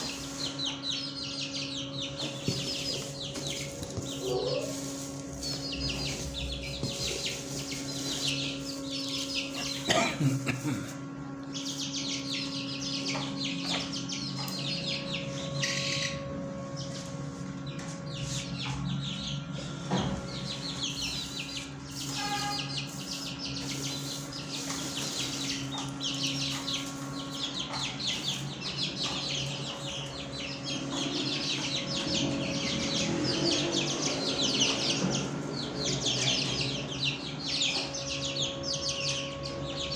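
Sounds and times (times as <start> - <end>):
flock of birds chirping: 0.0 - 39.9
steady low hum: 0.0 - 39.9.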